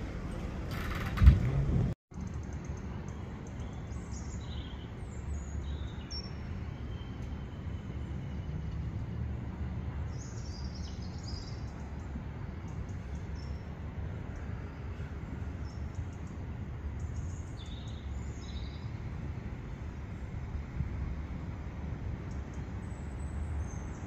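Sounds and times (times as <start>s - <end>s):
steady low rumble: 0.0s - 2.0s
small birds chirping: 2.2s - 8.2s, 10.1s - 19.1s.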